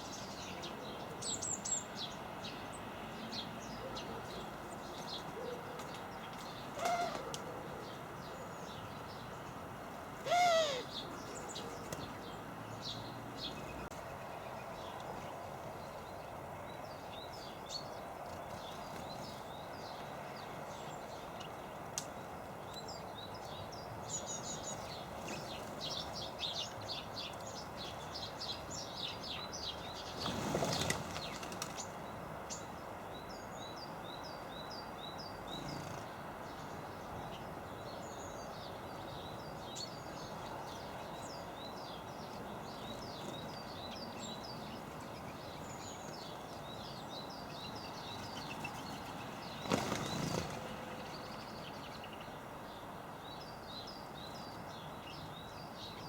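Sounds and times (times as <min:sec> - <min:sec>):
songbirds chirping and twittering: 0:00.0 - 0:56.0
loud falling bird call: 0:10.2 - 0:10.9.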